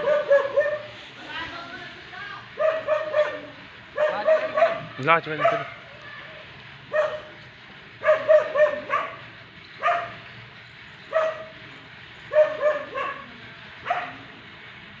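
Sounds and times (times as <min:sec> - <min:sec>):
dog barking: 0:00.0 - 0:00.9, 0:02.6 - 0:05.8, 0:06.9 - 0:07.3, 0:08.0 - 0:09.2, 0:09.8 - 0:10.2, 0:11.1 - 0:11.5, 0:12.3 - 0:14.2.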